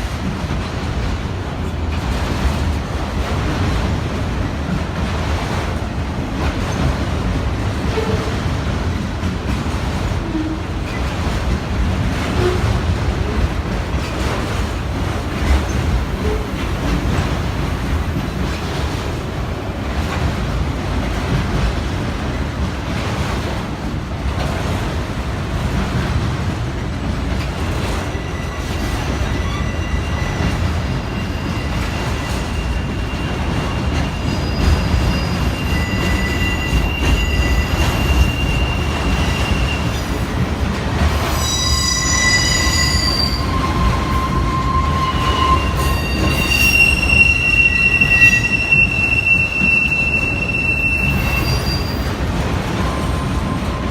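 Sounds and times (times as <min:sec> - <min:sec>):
train rolling past rumble: 0:00.0 - 0:53.9
wheels squealing on rails: 0:27.8 - 0:40.4, 0:41.0 - 0:53.9.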